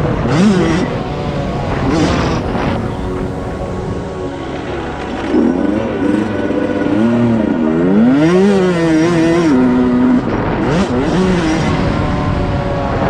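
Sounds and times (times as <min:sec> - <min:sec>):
dirt bike engines revving: 0:00.0 - 0:04.0.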